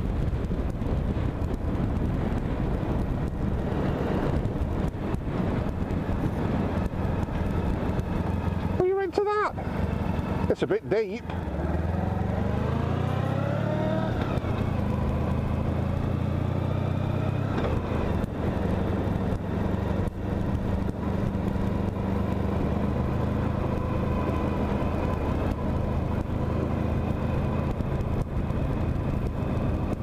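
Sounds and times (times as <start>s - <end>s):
motorcycle engine running: 0.0s - 30.0s
wind and road noise: 0.0s - 30.0s.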